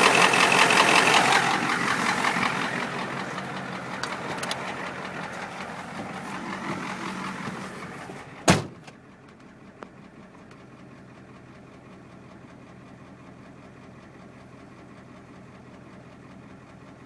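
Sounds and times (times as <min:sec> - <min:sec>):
diesel engine idling: 0:00.0 - 0:17.0
loud thump: 0:08.4 - 0:08.9.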